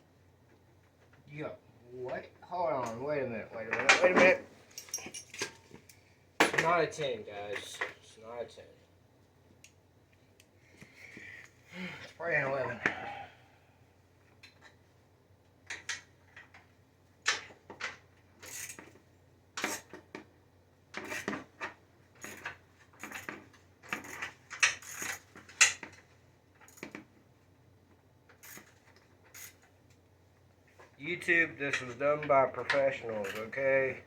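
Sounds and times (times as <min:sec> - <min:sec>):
metal tools clinking and rattling: 0:03.7 - 0:06.7, 0:32.6 - 0:33.6.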